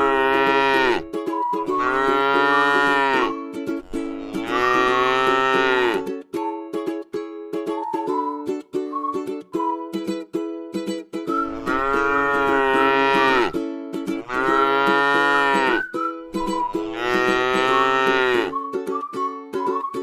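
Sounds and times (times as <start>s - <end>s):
cow mooing: 0.0s - 1.0s, 1.7s - 3.3s, 3.9s - 6.1s, 11.5s - 13.5s, 14.2s - 15.9s, 16.8s - 18.5s
ukulele music: 0.0s - 20.0s.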